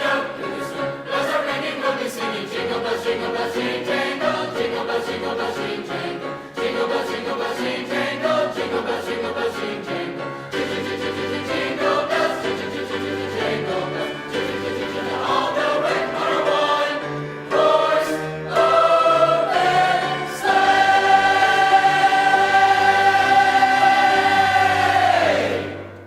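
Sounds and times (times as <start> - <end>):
choir singing: 0.0 - 26.0.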